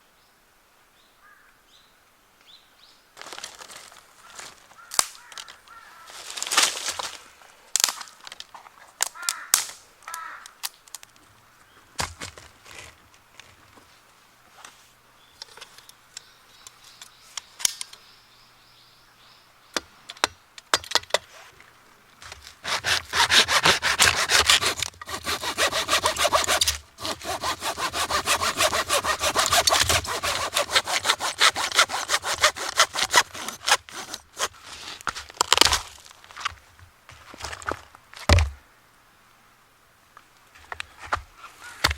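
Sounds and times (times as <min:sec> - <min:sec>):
wood being sawn by hand: 0:22.2 - 0:35.8.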